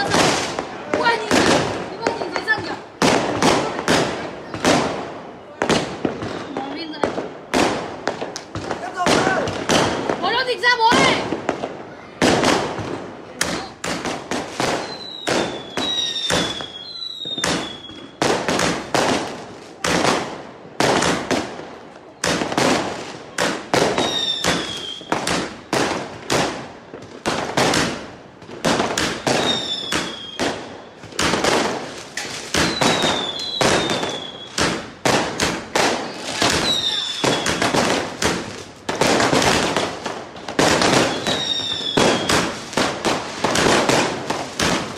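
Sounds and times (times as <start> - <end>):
fireworks cracking and banging: 0.0 - 44.9
falling fireworks whistles: 5.4 - 11.2, 13.6 - 19.3, 23.7 - 25.6, 28.7 - 44.9.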